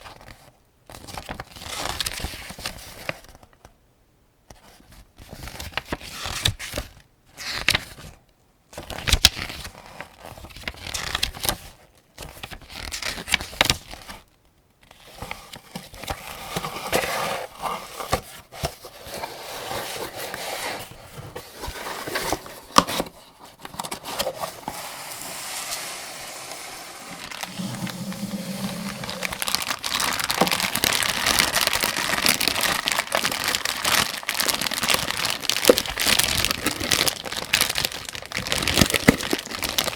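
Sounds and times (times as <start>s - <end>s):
crinkly rustling: 9.2s - 25.3s, 27.0s - 39.9s.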